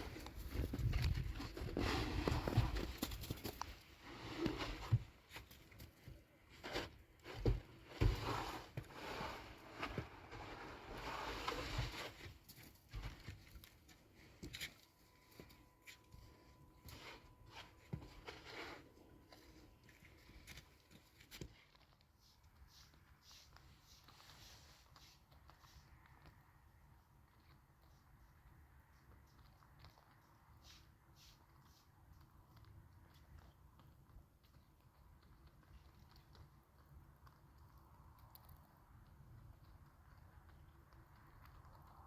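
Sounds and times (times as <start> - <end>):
faint steady tone: 13.8 - 21.0.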